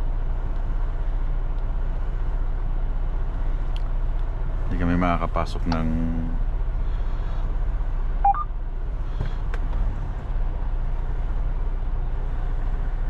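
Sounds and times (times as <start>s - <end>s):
truck engine droning: 0.0s - 13.0s
two-note electronic beep: 8.2s - 8.5s.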